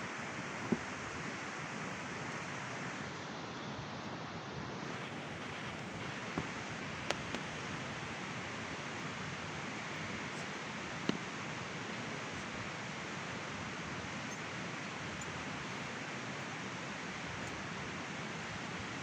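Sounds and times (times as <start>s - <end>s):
fire crackling pops: 4.9s - 9.2s.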